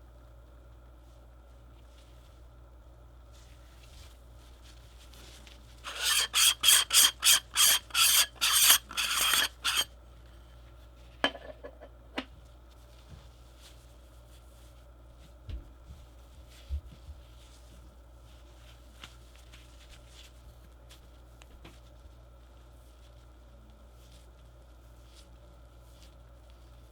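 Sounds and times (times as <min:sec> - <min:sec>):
packaging rasping by hand: 0:05.9 - 0:09.9.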